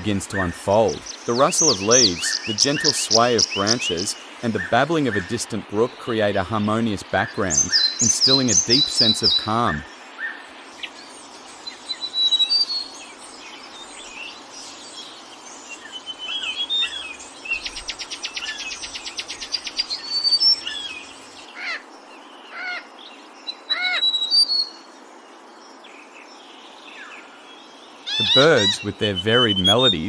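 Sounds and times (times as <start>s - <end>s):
rapid bird trill: 0.0s - 25.0s, 28.0s - 30.0s
background hiss: 0.0s - 30.0s
forest birds singing: 0.0s - 30.0s.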